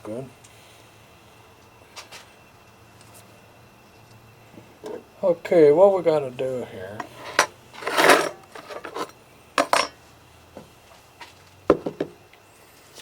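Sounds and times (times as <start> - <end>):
tool scraping on workbench: 7.0 - 9.9
tools clinking and knocking: 7.0 - 10.0.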